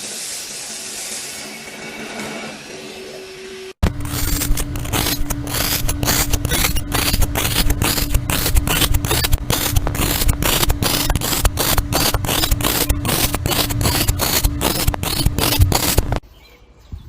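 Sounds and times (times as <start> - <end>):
quick scraping strokes: 3.8 - 16.2
steady machine hum: 3.8 - 16.2.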